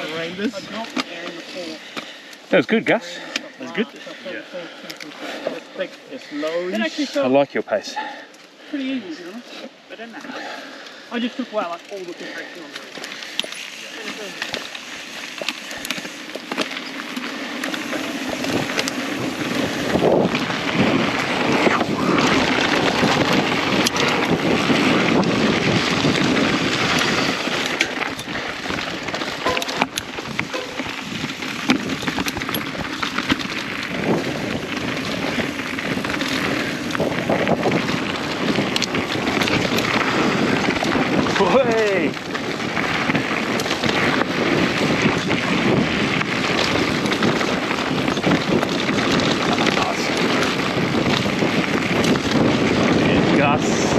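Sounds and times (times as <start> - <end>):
gravel and bike part clicks: 0.0 - 7.0, 10.0 - 53.9
bike tyres on loose ground: 0.0 - 53.9
wind on microphone: 17.7 - 53.9
bike clattering knocks: 29.2 - 33.2.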